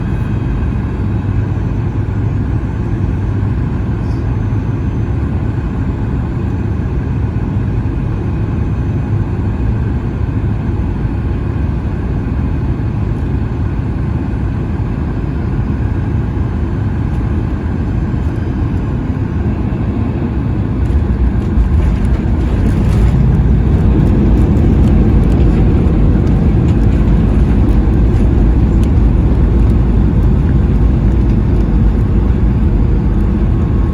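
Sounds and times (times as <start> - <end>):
airplane cabin engine rumble: 0.0 - 33.9.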